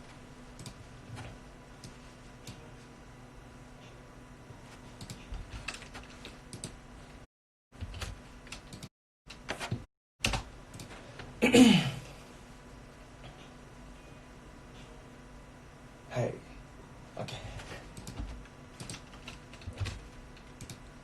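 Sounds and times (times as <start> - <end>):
keyboard and mouse clicks: 0.6 - 0.8, 5.0 - 6.8, 7.8 - 10.9, 17.9 - 20.8.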